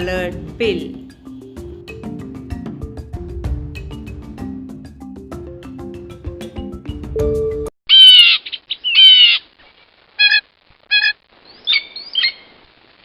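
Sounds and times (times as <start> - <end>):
toucan calling: 7.9 - 9.5, 10.2 - 12.5.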